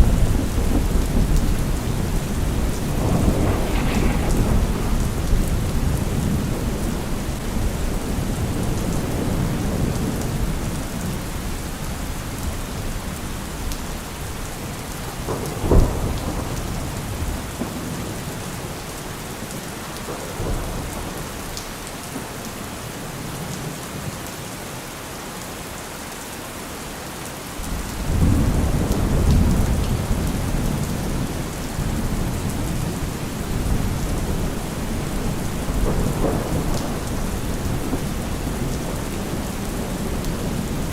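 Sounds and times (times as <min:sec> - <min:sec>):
sharp thunderclap: 0:00.0 - 0:09.9, 0:15.0 - 0:18.7, 0:31.8 - 0:40.9
rolling thunder: 0:00.0 - 0:21.5, 0:27.7 - 0:40.9
steady rain: 0:00.0 - 0:40.9.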